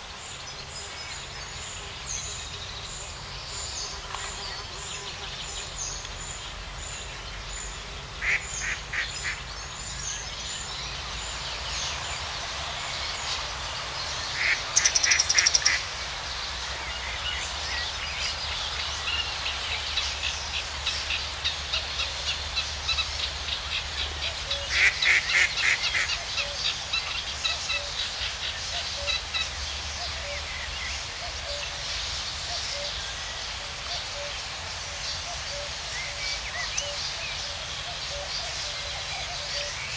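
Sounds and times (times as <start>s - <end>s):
steady background hiss: 0.0s - 39.9s
birds calling in pulsed notes: 16.9s - 39.9s.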